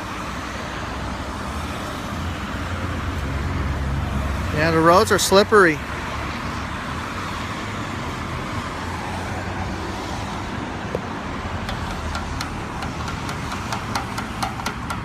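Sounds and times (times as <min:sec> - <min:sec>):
tyres hissing on wet road: 0:00.0 - 0:11.6.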